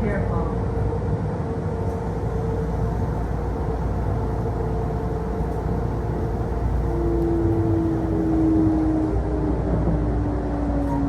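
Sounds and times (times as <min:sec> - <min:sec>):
train wheels rumbling on rail: 0:00.0 - 0:11.0
electric motor whine: 0:02.0 - 0:08.5.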